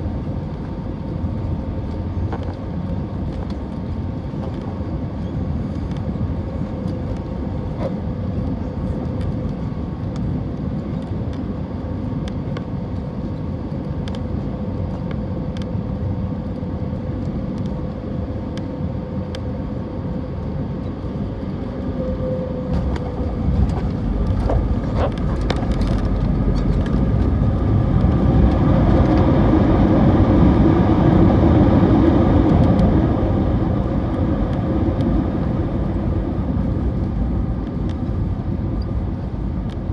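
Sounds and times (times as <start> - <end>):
engine and airflow rush: 0.0 - 39.9.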